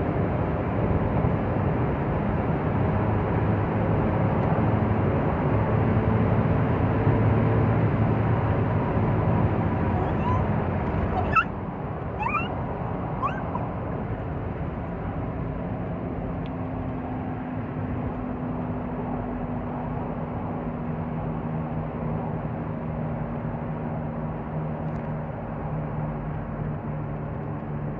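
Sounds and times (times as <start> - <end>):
road noise: 0.0 - 27.9
car engine running: 9.4 - 11.5, 12.2 - 13.7
short rising squeaks: 9.9 - 10.5, 11.1 - 11.5, 12.2 - 12.5, 13.2 - 13.6.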